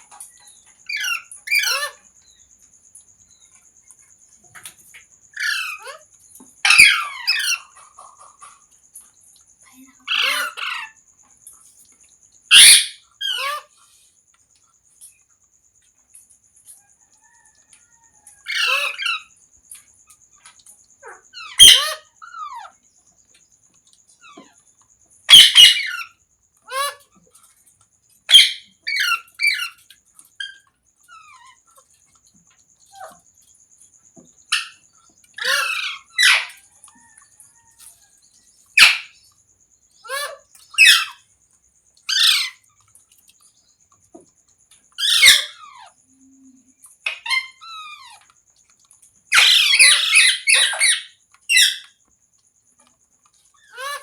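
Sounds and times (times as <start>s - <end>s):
parrot chirping and squawking: 0.0s - 2.1s, 5.3s - 8.7s, 10.0s - 11.0s, 12.5s - 13.9s, 18.4s - 19.4s, 21.0s - 22.8s, 25.3s - 27.3s, 28.2s - 32.0s, 34.5s - 37.8s, 38.6s - 39.3s, 40.0s - 41.3s, 42.0s - 42.8s, 45.0s - 46.0s, 46.9s - 48.3s, 49.3s - 52.0s, 53.5s - 54.0s.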